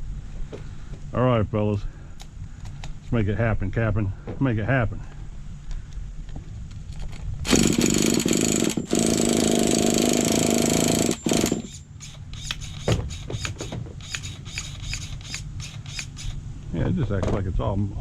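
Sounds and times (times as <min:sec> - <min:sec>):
small nitro engine buzzing: 0:07.5 - 0:16.4.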